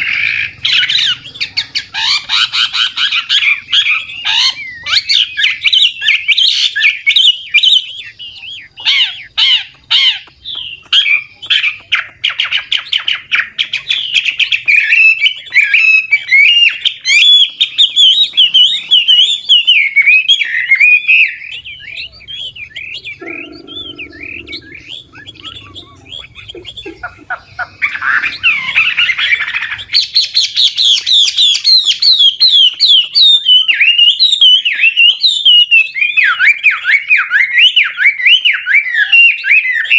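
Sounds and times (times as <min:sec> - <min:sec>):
bird singing whistled phrases: 0:13.8 - 0:26.9.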